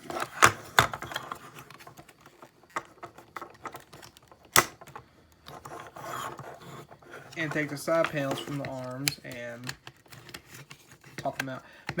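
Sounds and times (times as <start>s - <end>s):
plastic parts clicking and snapping: 0.0s - 6.5s, 7.2s - 12.0s.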